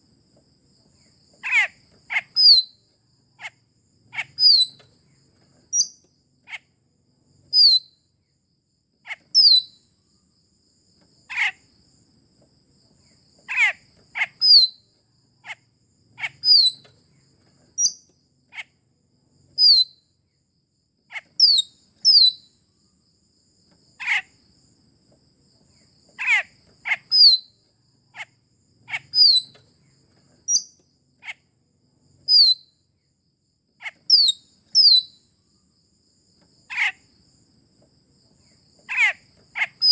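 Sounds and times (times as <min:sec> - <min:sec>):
insect-like buzz: 0:00.9 - 0:39.9
starling calling: 0:01.4 - 0:02.7, 0:03.4 - 0:04.8, 0:13.5 - 0:14.7, 0:16.2 - 0:16.9, 0:24.0 - 0:24.3, 0:26.2 - 0:27.5, 0:28.2 - 0:29.6, 0:33.8 - 0:35.2, 0:38.9 - 0:39.9.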